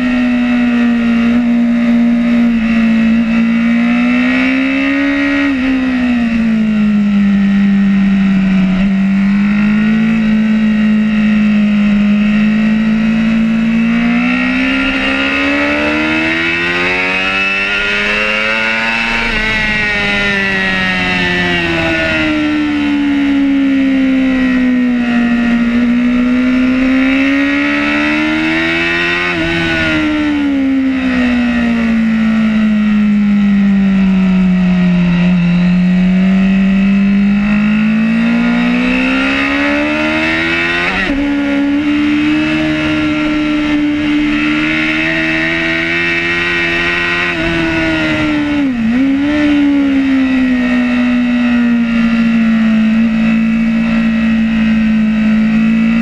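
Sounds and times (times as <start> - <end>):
superbike engine at racing speed: 0.0 - 56.0
wind rush: 16.4 - 22.8.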